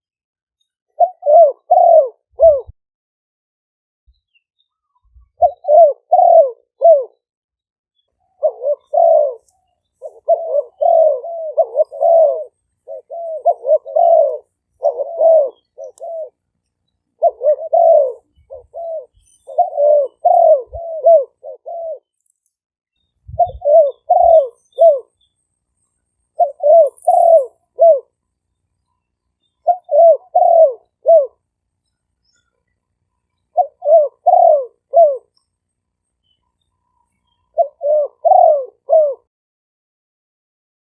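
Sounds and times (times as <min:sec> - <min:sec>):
doves cooing: 0:00.9 - 0:02.7, 0:05.2 - 0:07.2, 0:08.4 - 0:16.4, 0:17.1 - 0:22.1, 0:23.3 - 0:25.2, 0:26.3 - 0:28.2, 0:29.6 - 0:31.4, 0:33.5 - 0:35.3, 0:37.5 - 0:39.3.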